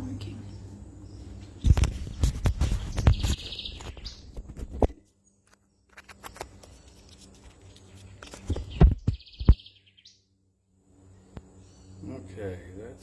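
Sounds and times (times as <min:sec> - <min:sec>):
microphone handling noise: 0:01.6 - 0:05.0, 0:08.2 - 0:09.6.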